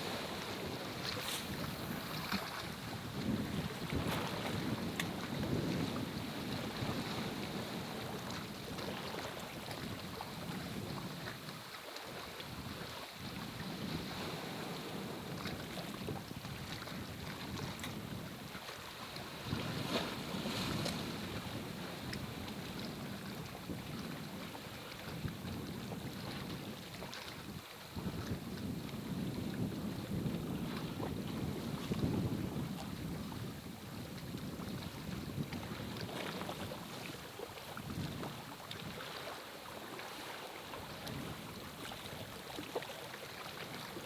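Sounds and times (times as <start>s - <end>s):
gusty wind buffeting microphone: 0.0s - 8.4s, 27.5s - 37.2s, 37.8s - 39.0s.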